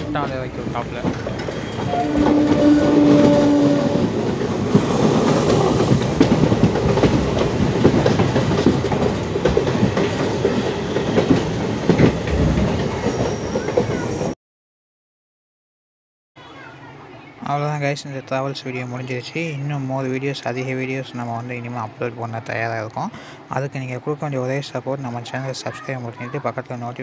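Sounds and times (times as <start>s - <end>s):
train wheels clattering on rails: 0.0s - 14.3s.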